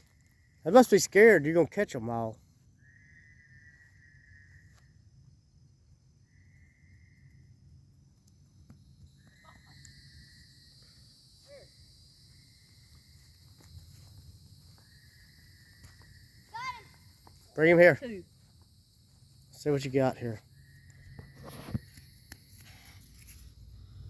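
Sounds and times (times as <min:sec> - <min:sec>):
insect trilling call: 0:00.0 - 0:05.1, 0:06.2 - 0:07.6, 0:09.0 - 0:24.0
high-pitched insect buzz: 0:08.9 - 0:24.0.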